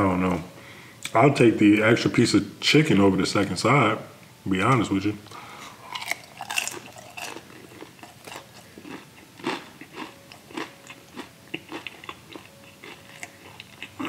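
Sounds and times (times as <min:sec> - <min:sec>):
person chewing crunchy food: 0:05.6 - 0:14.0.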